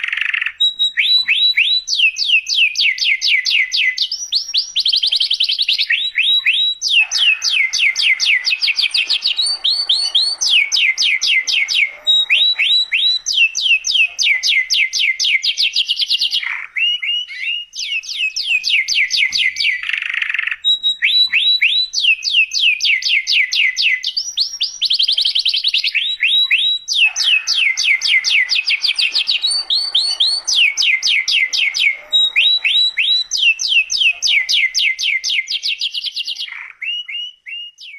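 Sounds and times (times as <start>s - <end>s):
canary singing trills: 0.0s - 37.9s.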